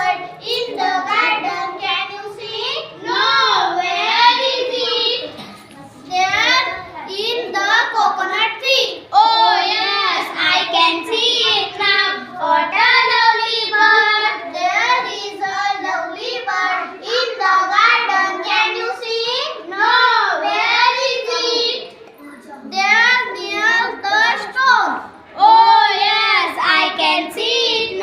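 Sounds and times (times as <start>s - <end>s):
children singing: 0.0s - 22.0s, 22.7s - 28.0s.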